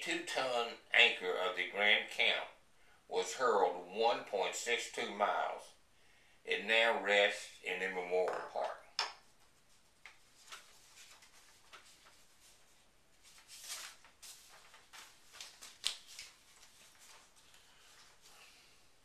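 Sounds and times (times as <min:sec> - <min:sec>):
soft rustling: 0:09.2 - 0:18.8.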